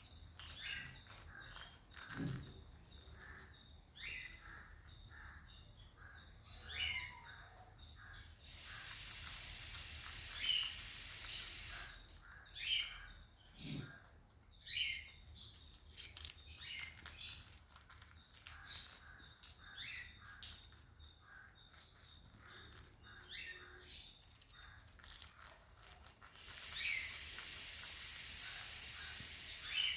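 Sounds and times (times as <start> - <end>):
parrots chirping: 0.0 - 14.0, 14.6 - 29.9
steady hiss: 8.4 - 12.1, 26.2 - 29.9.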